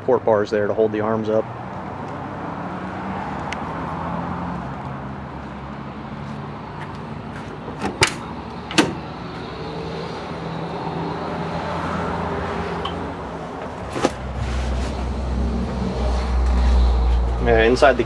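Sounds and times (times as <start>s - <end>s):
low vehicle hum: 1.5s - 18.0s
truck door clacks: 7.8s - 9.1s.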